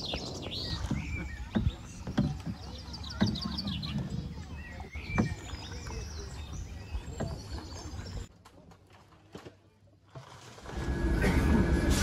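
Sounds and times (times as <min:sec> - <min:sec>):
birds chirping: 0:00.0 - 0:08.3.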